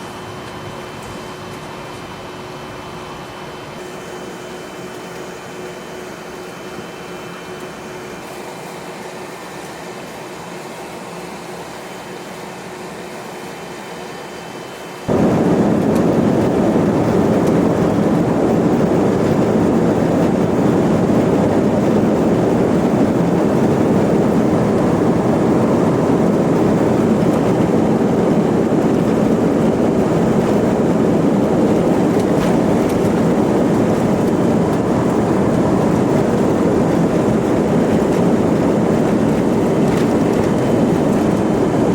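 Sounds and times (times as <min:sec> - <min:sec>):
jet engine and airflow roar: 0:00.0 - 0:41.9
cabin ventilation hum: 0:15.1 - 0:41.9.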